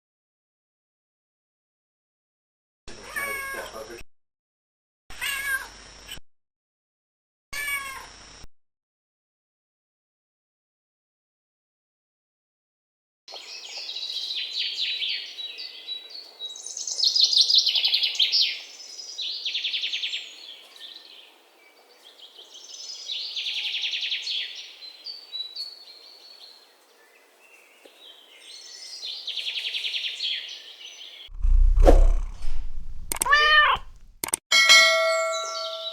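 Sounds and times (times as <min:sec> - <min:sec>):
songbirds trilling: 0:13.3 - 0:34.1.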